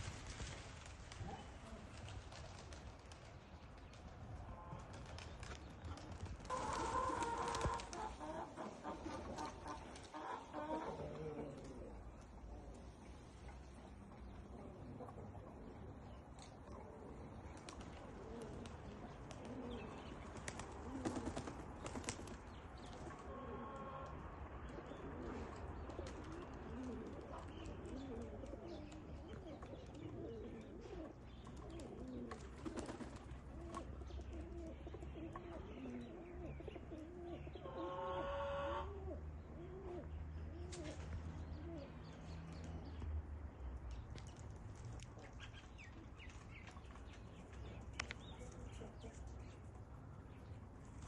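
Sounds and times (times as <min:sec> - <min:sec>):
pigeons cooing: 0:05.9 - 0:43.0.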